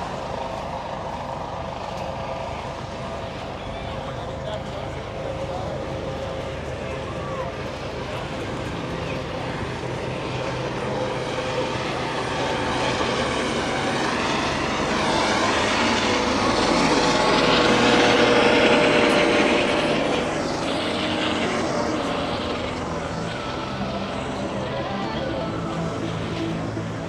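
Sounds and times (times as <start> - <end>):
aircraft passing overhead: 0.0 - 27.0.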